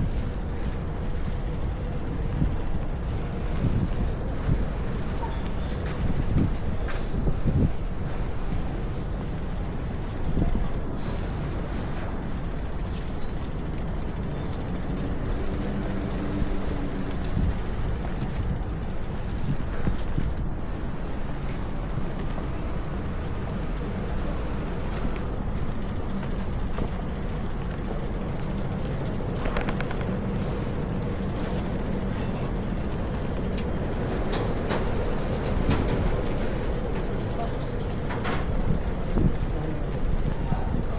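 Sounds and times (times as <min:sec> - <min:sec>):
gusting wind: 0:00.0 - 0:40.9
traffic rumble: 0:00.0 - 0:40.9
clicks and rattles: 0:24.8 - 0:40.9.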